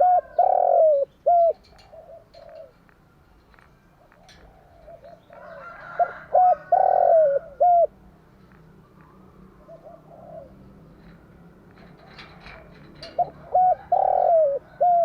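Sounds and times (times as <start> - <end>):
dove cooing: 0.0 - 2.8, 4.0 - 8.0, 9.0 - 15.0.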